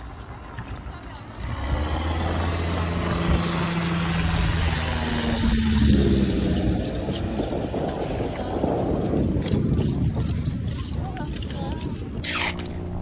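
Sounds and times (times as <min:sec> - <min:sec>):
propeller aircraft engine droning: 0:00.1 - 0:13.0.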